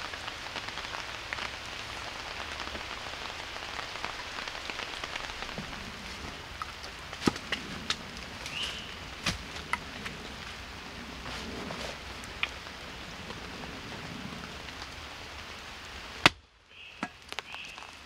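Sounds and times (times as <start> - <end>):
rain pattering: 0.0 - 18.0
water drips: 16.2 - 18.0.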